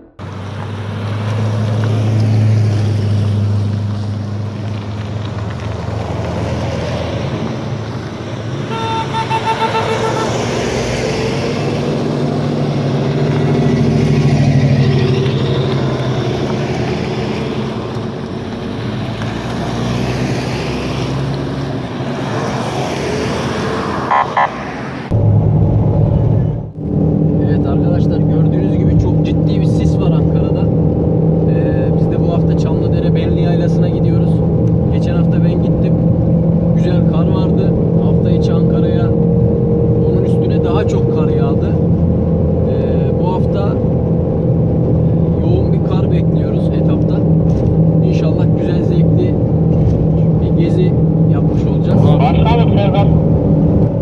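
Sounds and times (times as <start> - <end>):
off-road vehicle engines revving: 0.0 - 54.0
car horn: 8.6 - 10.4, 24.1 - 24.7.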